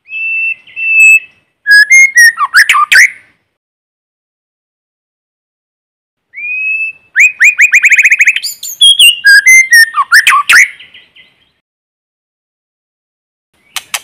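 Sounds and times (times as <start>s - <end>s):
bird singing whistled phrases: 0.0s - 3.2s, 6.3s - 11.6s.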